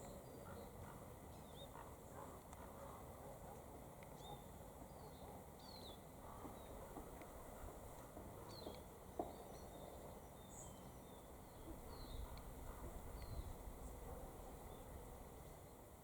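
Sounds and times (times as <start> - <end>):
small birds chirping: 8.4 - 15.0.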